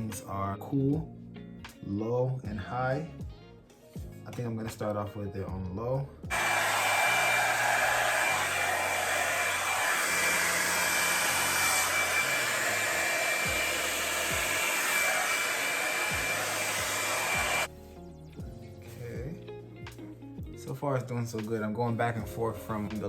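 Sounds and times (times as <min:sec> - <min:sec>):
hot air brush blowing: 0:06.3 - 0:17.7.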